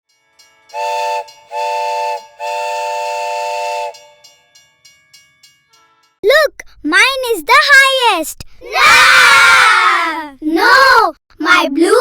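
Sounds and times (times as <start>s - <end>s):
steam whistle blasts: 0.7s - 4.2s.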